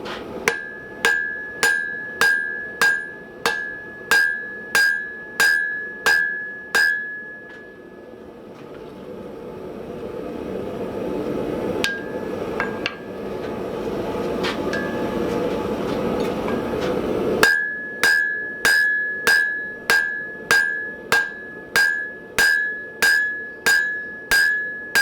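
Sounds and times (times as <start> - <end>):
hammer striking hot steel on anvil: 0.0 - 8.1, 11.8 - 13.2, 14.6 - 15.4, 16.4 - 25.0
light ringing taps: 0.5 - 7.8, 14.7 - 15.4.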